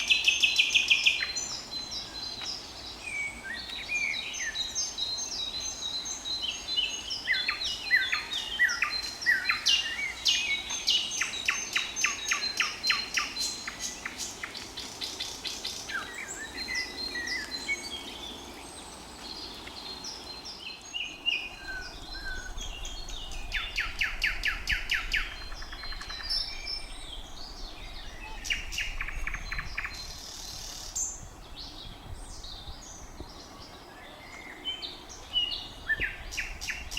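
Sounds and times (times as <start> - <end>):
nightingale singing: 0.0 - 36.9.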